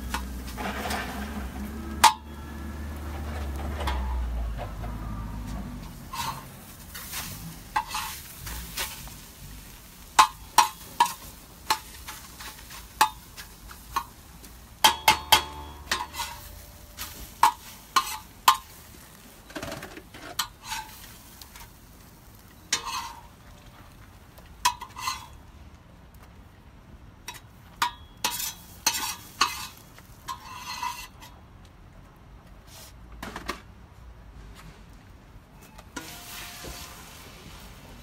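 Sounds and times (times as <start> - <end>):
utensil scraping and tapping a pan: 0.0 - 2.4, 3.0 - 4.9, 5.8 - 9.2, 10.1 - 18.8, 19.4 - 21.7, 22.6 - 23.4, 24.6 - 25.4, 27.3 - 31.4
food sizzling in a pan: 5.9 - 19.3, 36.0 - 38.0.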